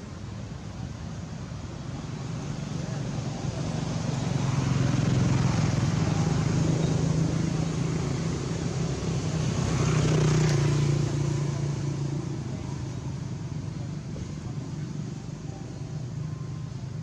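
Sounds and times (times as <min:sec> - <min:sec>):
vehicle engine passing by: 0:03.4 - 0:13.3.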